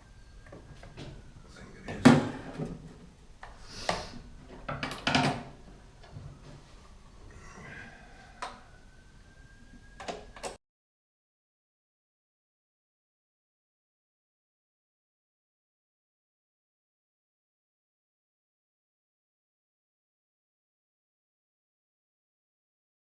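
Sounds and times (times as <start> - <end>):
tools knocking and clattering: 4.5 - 5.6.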